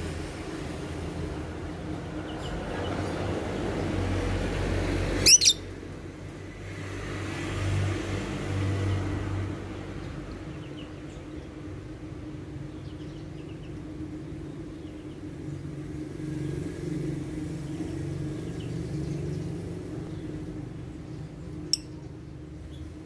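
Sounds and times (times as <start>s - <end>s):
small bird chirping: 5.2s - 5.7s.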